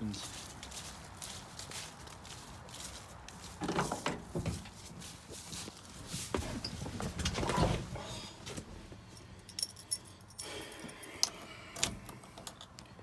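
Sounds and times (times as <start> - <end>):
keys jangling: 9.1 - 12.8.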